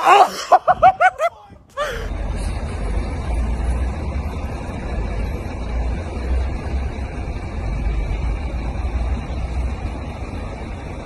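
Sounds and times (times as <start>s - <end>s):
motor vehicle rumble: 0.0s - 11.0s
road hiss: 1.7s - 11.0s.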